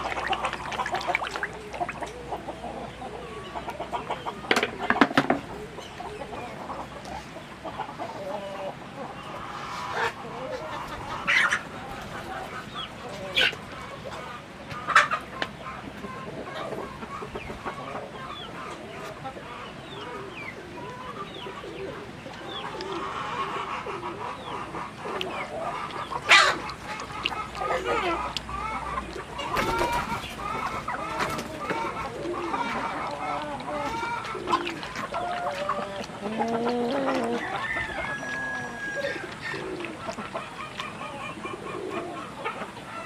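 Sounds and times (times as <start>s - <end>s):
chickens clucking: 0.0s - 43.0s.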